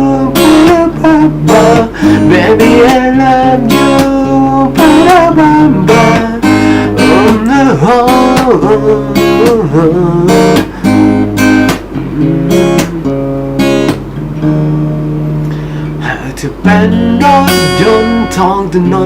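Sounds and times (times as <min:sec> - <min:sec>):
person singing: 0:00.0 - 0:11.2, 0:12.0 - 0:13.4, 0:15.7 - 0:19.0
acoustic guitar strumming chords: 0:00.0 - 0:19.0.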